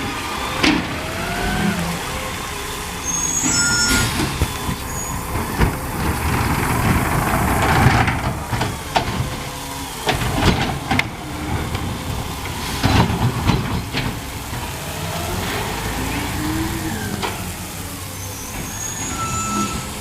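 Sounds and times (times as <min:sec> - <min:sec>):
air hissing: 0:00.0 - 0:07.8
garbage truck running: 0:00.0 - 0:20.0
sharp knocks and clanks: 0:03.4 - 0:15.7.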